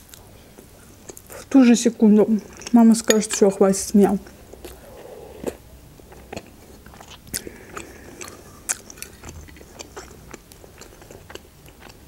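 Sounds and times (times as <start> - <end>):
person chewing food: 0.1 - 1.5, 4.2 - 12.0.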